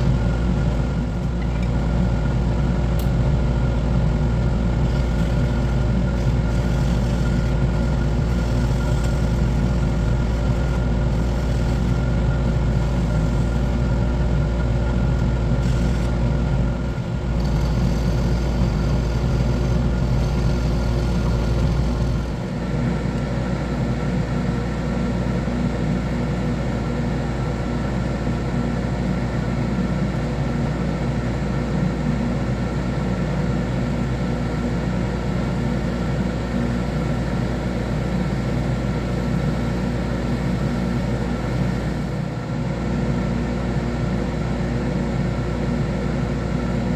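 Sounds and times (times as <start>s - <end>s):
wood lathe motor hum: 0.0s - 27.2s, 32.5s - 42.5s.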